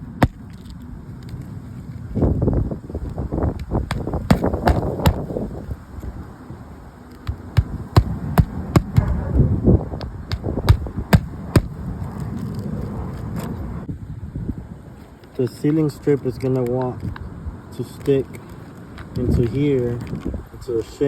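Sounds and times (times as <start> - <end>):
hammer driving nails into shingles: 0.2 - 0.4, 3.9 - 5.2, 7.3 - 9.1, 10.0 - 11.7.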